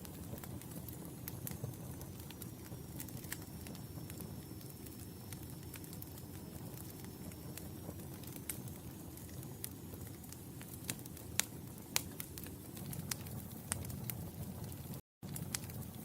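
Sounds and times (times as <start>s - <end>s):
fire crackling and popping: 0.0s - 16.0s
fire rumbling: 0.0s - 16.0s.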